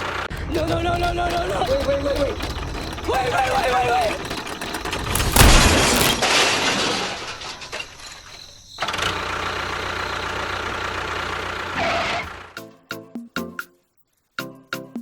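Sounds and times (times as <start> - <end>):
engine running steadily: 0.0 - 6.1
crash: 4.2 - 9.1.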